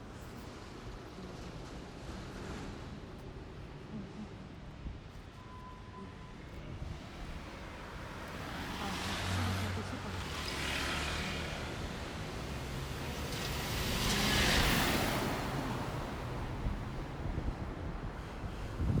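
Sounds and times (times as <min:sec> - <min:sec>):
vehicles passing by: 0:06.9 - 0:19.0.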